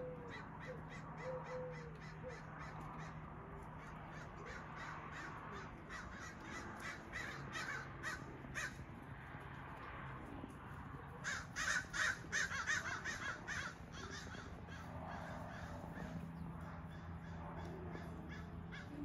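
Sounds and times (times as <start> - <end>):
steady low hum: 0.0 - 19.0
bird harsh calls: 3.8 - 8.8, 11.2 - 19.0.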